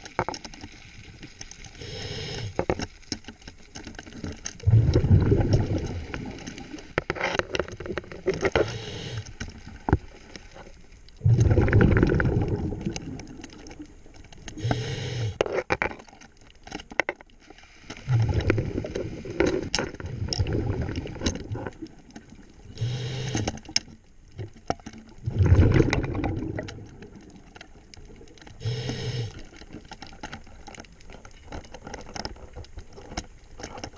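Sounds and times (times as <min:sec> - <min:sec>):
hissing regulator inhalations: 0:01.7 - 0:02.6, 0:08.6 - 0:09.4, 0:14.6 - 0:15.4, 0:22.7 - 0:23.7, 0:28.6 - 0:29.5
bubbling exhaled air underwater: 0:04.6 - 0:06.9, 0:11.2 - 0:15.4, 0:18.0 - 0:22.0, 0:25.2 - 0:29.8.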